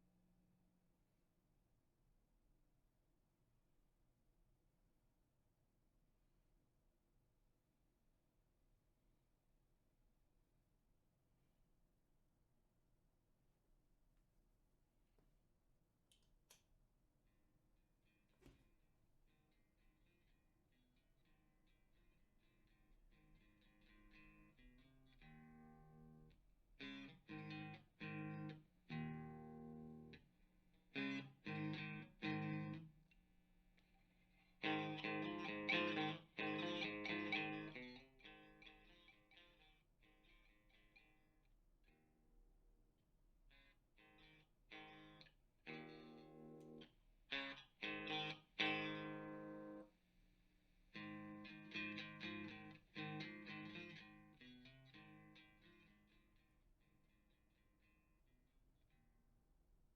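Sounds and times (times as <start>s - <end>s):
electric guitar strummed chords: 23.4s - 30.2s, 31.0s - 32.9s, 34.6s - 39.6s, 44.1s - 46.8s, 47.4s - 49.9s, 51.0s - 56.0s
electric guitar chord stabs: 34.6s - 39.1s.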